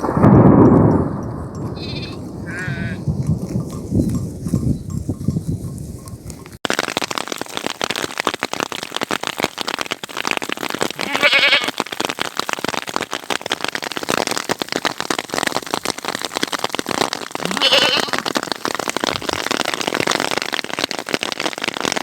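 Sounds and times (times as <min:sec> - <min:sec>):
rain drops spattering: 0:00.0 - 0:04.3, 0:06.3 - 0:22.0
sheep bleating: 0:01.8 - 0:03.1, 0:11.0 - 0:11.7, 0:17.4 - 0:18.2.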